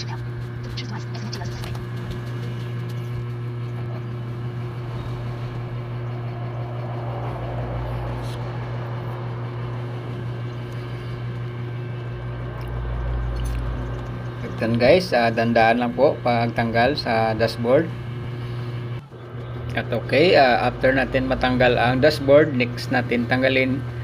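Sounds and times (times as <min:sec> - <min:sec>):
machine hum: 0:00.0 - 0:24.0
deep rumble: 0:01.4 - 0:16.0, 0:17.9 - 0:24.0.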